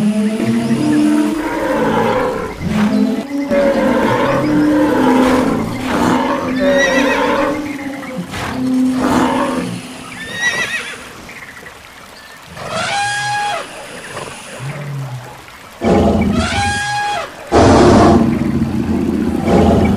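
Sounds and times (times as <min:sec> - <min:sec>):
low long animal calls: 0:00.0 - 0:11.1, 0:12.4 - 0:19.9
horses neighing: 0:00.0 - 0:11.2.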